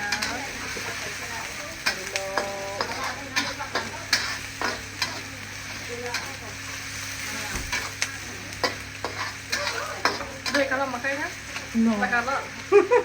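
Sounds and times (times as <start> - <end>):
spatula scraping a pan: 0.0 - 8.0, 8.6 - 10.8
food sizzling in a pan: 0.0 - 13.0.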